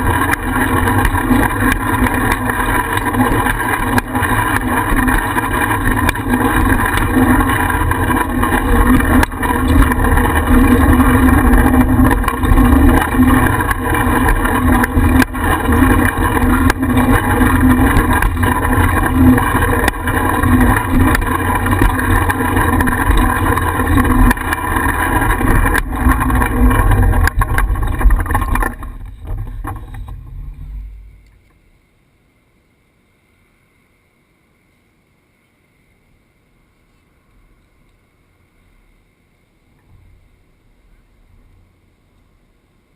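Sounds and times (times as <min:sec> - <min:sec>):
clicks and knocks from bumps: 0:00.0 - 0:31.6
wind rumble: 0:00.0 - 0:31.8
bicycle ride noise: 0:00.0 - 0:42.9.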